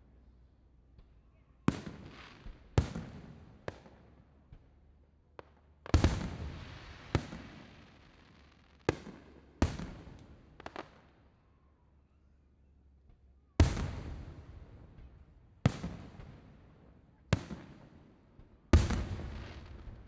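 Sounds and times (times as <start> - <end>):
small firework pops: 0.9 - 11.4, 13.0 - 16.6, 17.2 - 20.0
fireworks booming with echoes: 1.7 - 3.9, 5.8 - 8.2, 8.9 - 11.0, 13.6 - 16.6, 17.3 - 18.1, 18.7 - 20.0.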